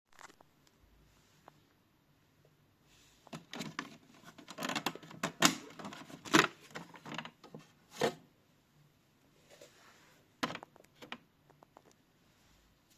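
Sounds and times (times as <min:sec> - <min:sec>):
toy washing machine clicks and knocks: 0:03.4 - 0:07.4.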